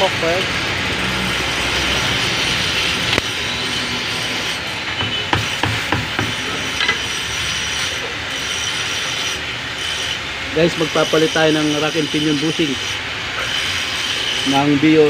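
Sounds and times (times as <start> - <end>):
steady background noise: 0.0 - 15.0
sharp knocks and clicks: 4.9 - 7.0.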